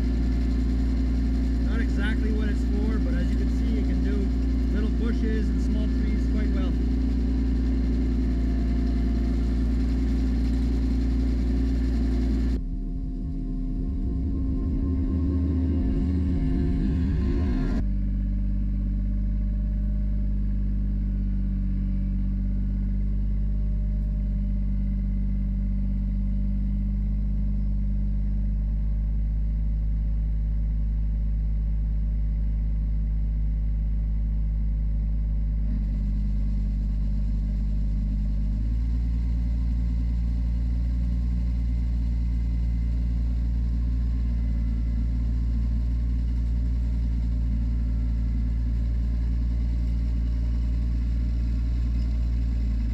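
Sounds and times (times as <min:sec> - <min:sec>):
tractor engine running: 0:00.0 - 0:18.0, 0:28.7 - 0:52.9.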